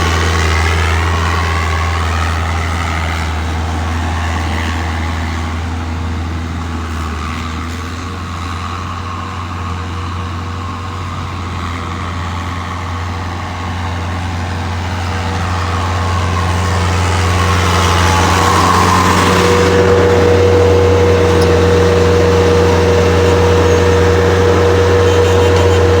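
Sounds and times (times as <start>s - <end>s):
diesel engine running: 0.0s - 26.0s
high machine whine: 14.6s - 26.0s.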